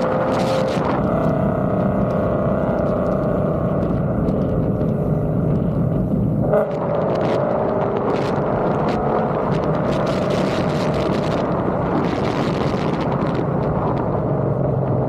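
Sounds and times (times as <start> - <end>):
engine exhaust drone: 0.0 - 15.0.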